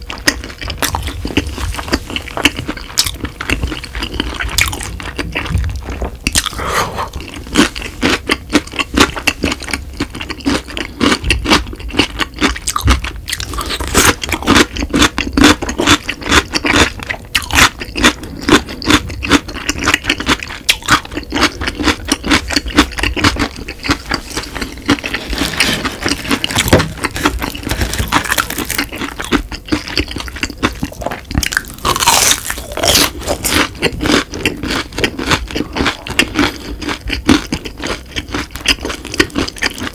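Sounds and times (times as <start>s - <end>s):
biting fried cheese stick: 0.0s - 5.6s, 6.3s - 39.9s
chewing crunchy pickled radish: 0.0s - 39.9s.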